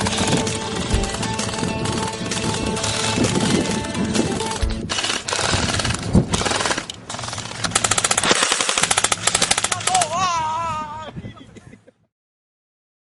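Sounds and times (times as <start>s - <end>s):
rapid automatic gunfire: 4.9s - 10.0s.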